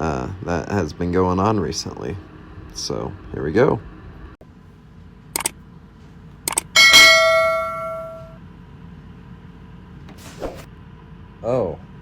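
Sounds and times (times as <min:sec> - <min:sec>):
short clicks: 0:06.5 - 0:06.7
bell ringing: 0:06.5 - 0:08.4.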